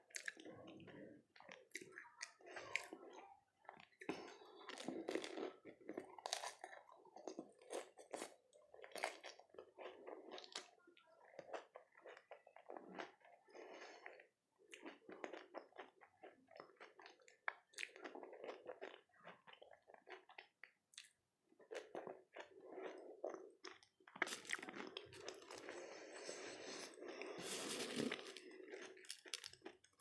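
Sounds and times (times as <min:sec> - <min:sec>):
wet mouth sounds: 0:22.0 - 0:29.9.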